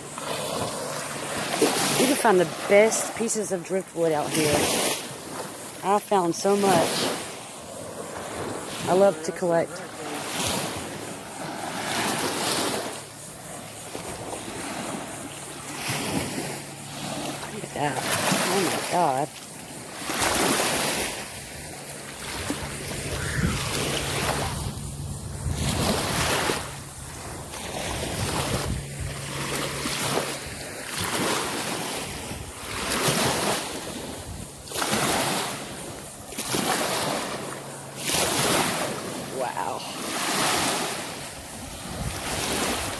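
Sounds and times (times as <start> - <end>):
surf breaking on beach: 0.0 - 42.9
wind on microphone: 19.8 - 34.7, 41.2 - 42.9.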